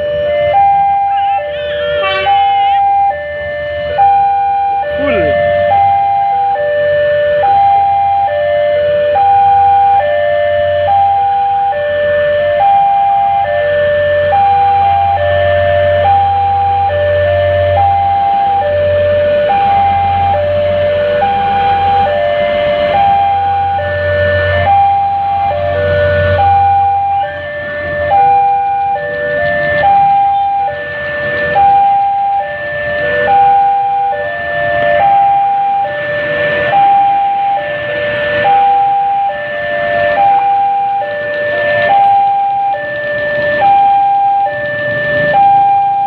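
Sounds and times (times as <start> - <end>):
two-tone electronic alarm: 0.0 - 46.0
level crossing warning chime: 4.1 - 6.1.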